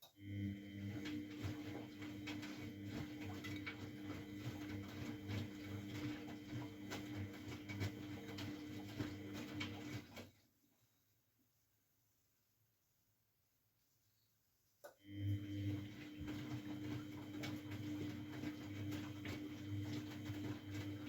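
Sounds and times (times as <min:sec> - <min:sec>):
washing machine motor hum: 0:00.0 - 0:10.4, 0:15.0 - 0:21.0.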